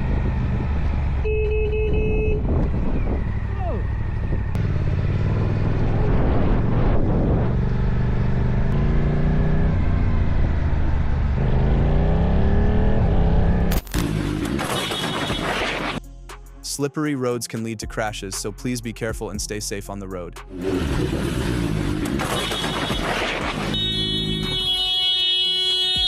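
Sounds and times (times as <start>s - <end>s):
vehicle engine accelerating: 0.0s - 1.8s, 2.4s - 14.8s, 20.5s - 24.5s.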